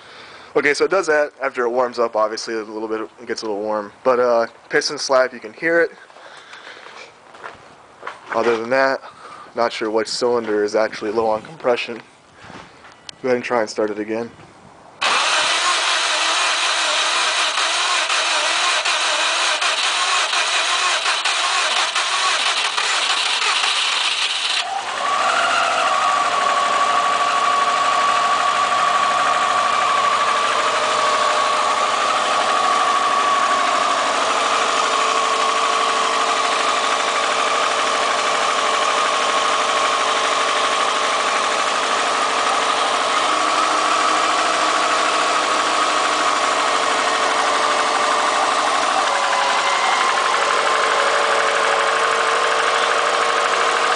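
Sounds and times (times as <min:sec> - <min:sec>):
car engine idling: 0:15.0 - 0:53.9
engine starter cranking: 0:15.0 - 0:53.9.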